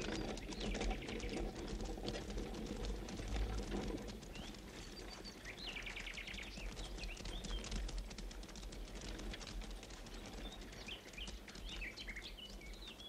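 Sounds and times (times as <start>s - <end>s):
faint clicks: 0.0s - 13.0s
birds chirping: 4.2s - 7.8s, 10.1s - 13.0s.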